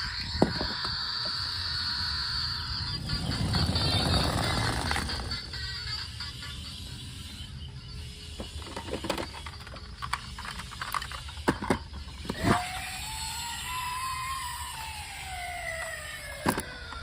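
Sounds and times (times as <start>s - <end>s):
toy siren wailing: 0.0s - 17.0s
plastic toy clicks and knocks: 8.4s - 12.6s.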